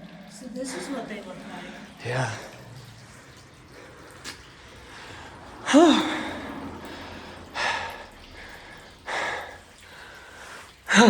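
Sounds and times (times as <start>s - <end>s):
person breathing heavily: 3.6s - 11.0s.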